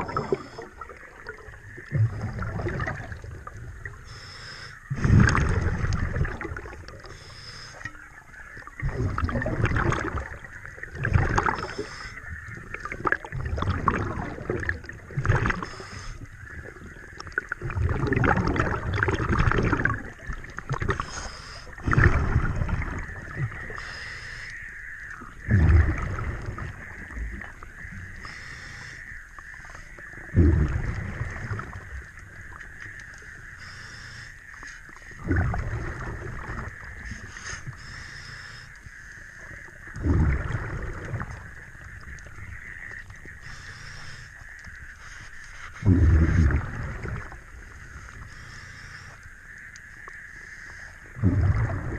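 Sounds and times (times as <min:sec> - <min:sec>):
gurgling exhaust bubbles: 0:00.0 - 0:04.0, 0:04.9 - 0:07.2, 0:08.5 - 0:21.1, 0:21.7 - 0:23.9, 0:25.2 - 0:28.4, 0:30.0 - 0:32.7, 0:35.0 - 0:37.2, 0:39.5 - 0:43.6, 0:45.8 - 0:48.2, 0:51.0 - 0:51.9
regulator inhale hiss: 0:04.0 - 0:05.0, 0:07.0 - 0:08.0, 0:11.6 - 0:12.3, 0:15.6 - 0:16.4, 0:21.0 - 0:21.8, 0:23.8 - 0:24.6, 0:28.2 - 0:29.1, 0:33.6 - 0:34.8, 0:37.1 - 0:39.2, 0:43.4 - 0:44.4, 0:45.0 - 0:45.9, 0:47.9 - 0:49.3.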